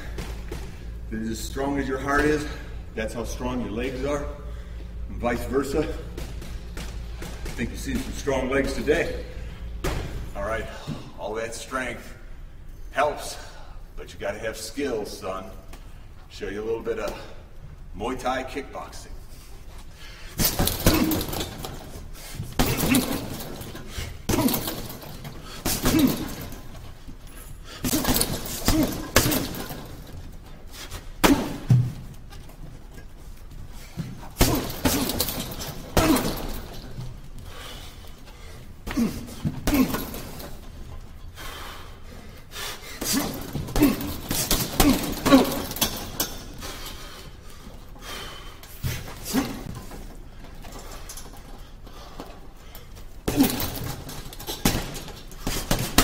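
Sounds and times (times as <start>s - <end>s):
kicks and punches hitting pads: 20.4s - 21.9s, 22.5s - 26.6s, 27.8s - 30.1s, 31.2s - 32.0s, 34.2s - 36.9s, 38.9s - 40.5s, 43.0s - 46.2s, 53.2s - 56.0s.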